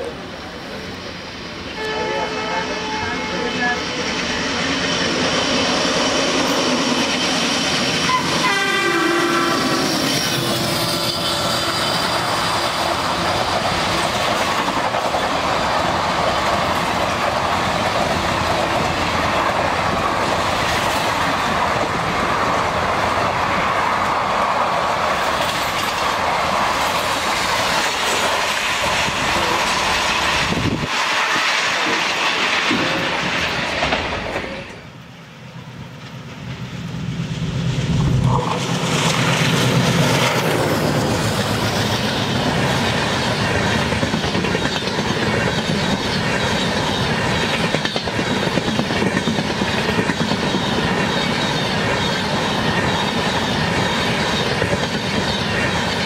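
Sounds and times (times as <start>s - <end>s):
train passing at speed: 0.0s - 56.0s
train horn: 1.8s - 3.8s, 8.0s - 10.0s
train wheels clickety-clack: 5.1s - 34.8s, 35.9s - 56.0s.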